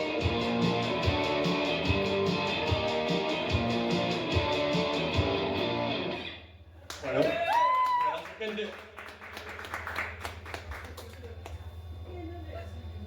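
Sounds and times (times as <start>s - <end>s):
strummed electric guitar chords: 0.0s - 6.4s.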